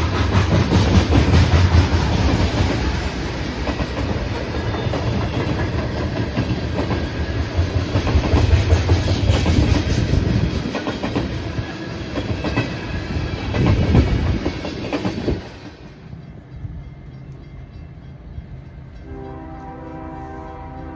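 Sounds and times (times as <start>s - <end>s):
train wheels clacking over rail joints: 0.0s - 16.4s
train rumble: 0.0s - 20.9s.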